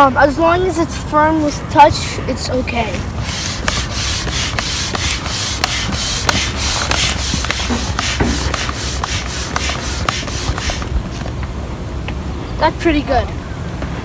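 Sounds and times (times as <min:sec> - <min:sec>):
air pump strokes: 0:01.2 - 0:11.5
pump clicks: 0:03.0 - 0:11.5.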